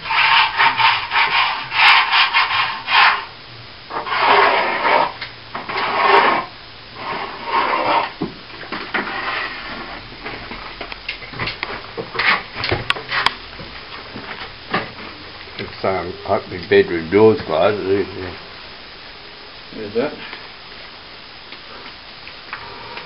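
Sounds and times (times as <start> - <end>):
hand tool rubbing plaster wall: 0.0 - 3.3, 3.9 - 8.2, 8.9 - 10.0.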